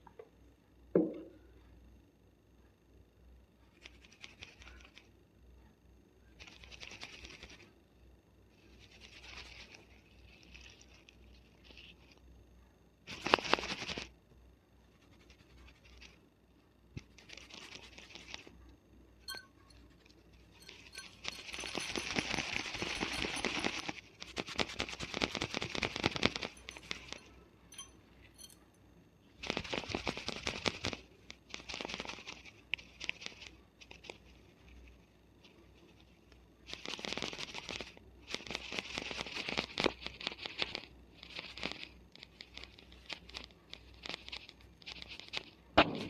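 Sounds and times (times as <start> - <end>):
hair rustling: 20.6 - 28.6
fingernails scratching scalp: 42.4 - 45.5.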